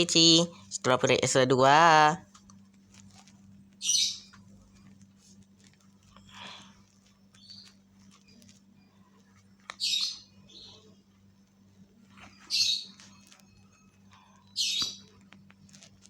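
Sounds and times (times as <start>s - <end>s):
faint electrical hum: 0.0s - 16.0s
bird squawking: 3.8s - 4.2s, 9.7s - 10.9s, 12.4s - 13.1s, 14.6s - 15.1s.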